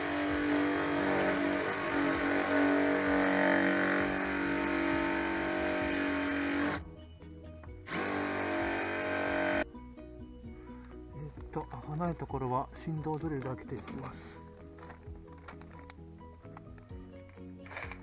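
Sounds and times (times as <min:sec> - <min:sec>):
electric drill running: 0:00.0 - 0:06.8, 0:07.9 - 0:09.6, 0:17.7 - 0:18.0
background music: 0:00.0 - 0:18.0.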